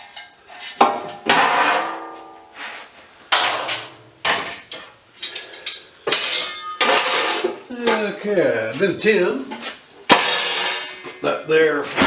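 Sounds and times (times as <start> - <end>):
scrap metal clanking: 0.0 - 8.1, 9.5 - 12.0.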